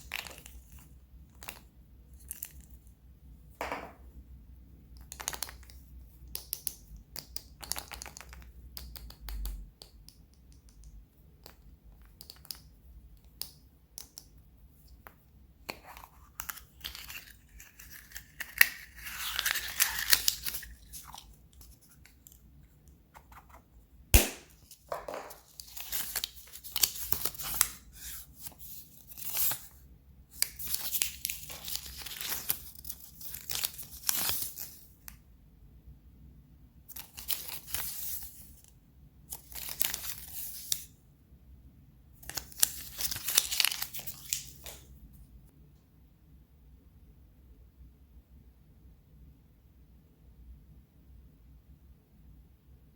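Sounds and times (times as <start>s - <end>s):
small clicks and taps: 5.0s - 14.3s
wrappers tearing and crinkling: 16.9s - 21.2s
sharp crack: 24.2s - 24.8s.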